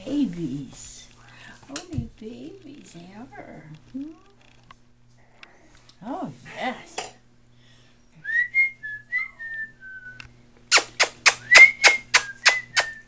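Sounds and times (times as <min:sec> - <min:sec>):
person whistling: 0:08.2 - 0:10.2, 0:11.3 - 0:13.0.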